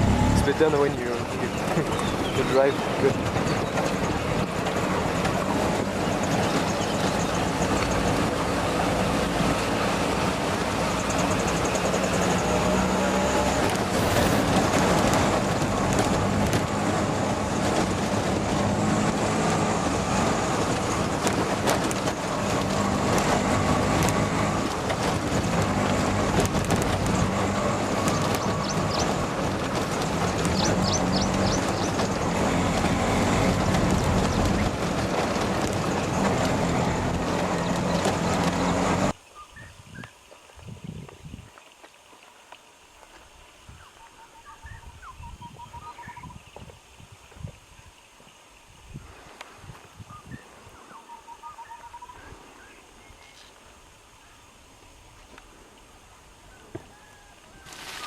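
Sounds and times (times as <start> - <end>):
vehicle running hum: 0.0 - 39.2.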